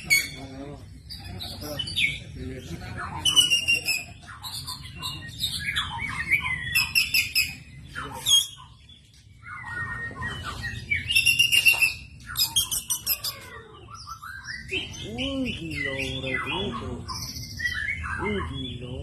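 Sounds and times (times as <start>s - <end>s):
bird singing whistled phrases: 3.2s - 8.7s, 9.4s - 19.0s.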